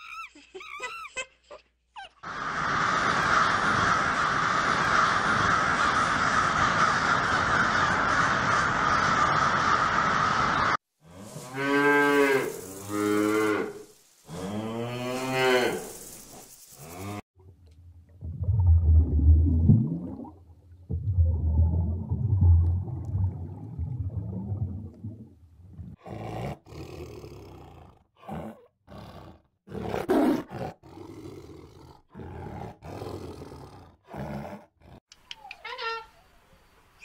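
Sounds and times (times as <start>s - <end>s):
big cat roaring: 26.0s - 35.0s
big cat snarling: 26.0s - 35.0s.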